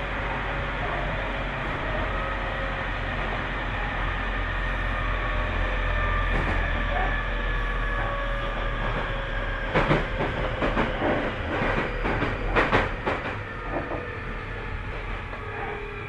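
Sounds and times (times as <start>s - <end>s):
wheels clacking over rail joints: 8.6s - 14.1s.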